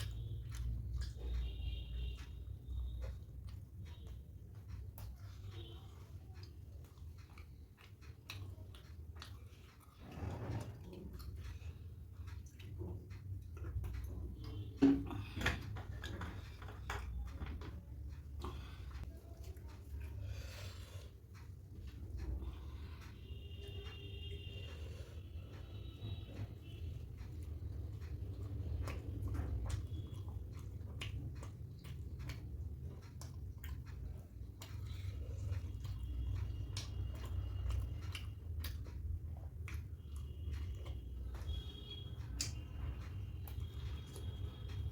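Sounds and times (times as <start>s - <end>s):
food being chewed: 0.0s - 44.9s
low steady hum: 0.0s - 44.9s
wet mouth smacks while chewing: 27.2s - 44.8s.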